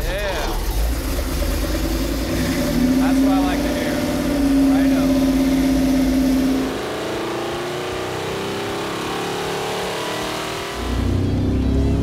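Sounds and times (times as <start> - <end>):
engine revving under load: 0.0 - 12.0.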